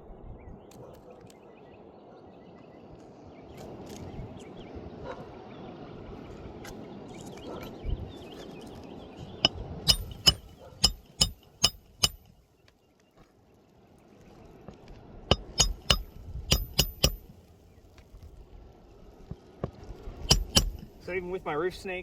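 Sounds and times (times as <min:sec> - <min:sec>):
hammer striking metal: 0:09.4 - 0:12.3, 0:15.3 - 0:17.3, 0:20.3 - 0:21.0.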